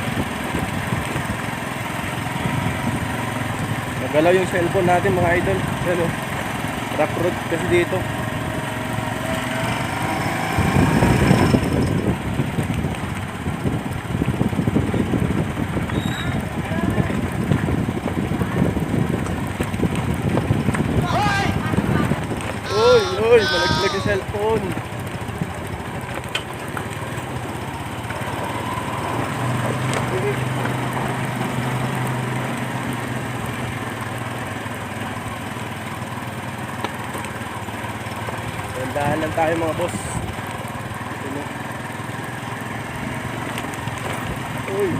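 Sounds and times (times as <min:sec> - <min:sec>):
motorcycle riding on rough road: 0:00.0 - 0:44.9.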